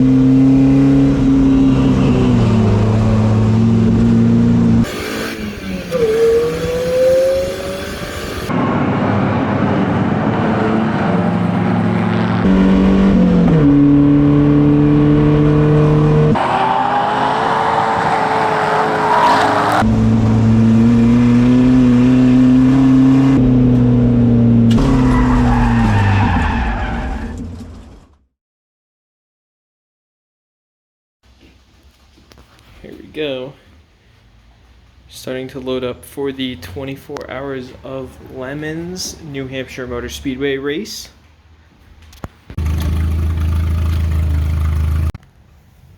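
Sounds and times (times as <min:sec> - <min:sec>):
car engine: 0:00.0 - 0:28.1, 0:42.5 - 0:45.2
tyres skidding: 0:00.0 - 0:28.1, 0:42.5 - 0:45.2.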